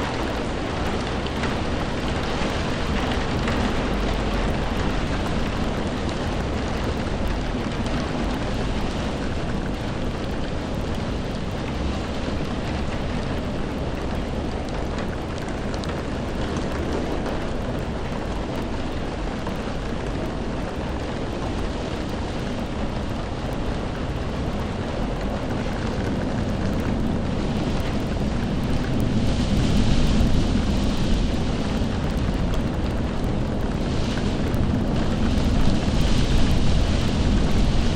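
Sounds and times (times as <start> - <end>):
steady rain: 0.0 - 37.9.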